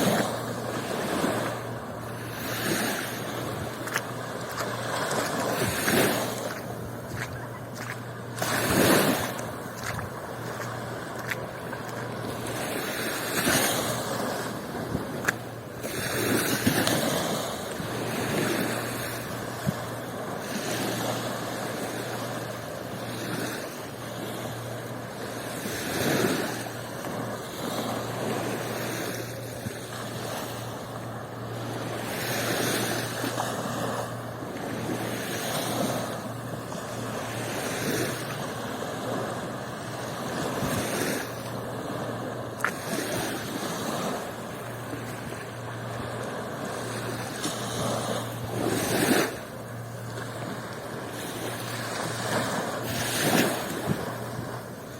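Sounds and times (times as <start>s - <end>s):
low hum: 0.0s - 25.7s
waves washing onto beach: 0.0s - 54.9s.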